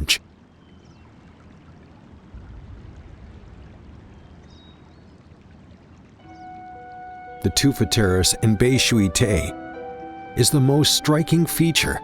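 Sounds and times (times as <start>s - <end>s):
water trickling: 0.0s - 9.5s.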